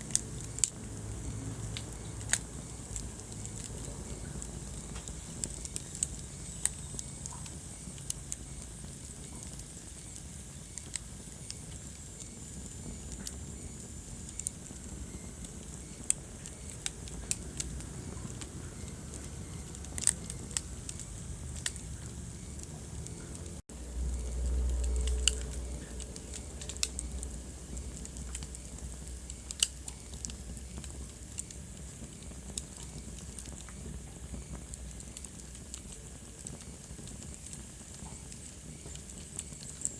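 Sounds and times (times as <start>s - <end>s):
wood fire crackling: 0.0s - 39.9s
low rumble: 17.2s - 29.5s.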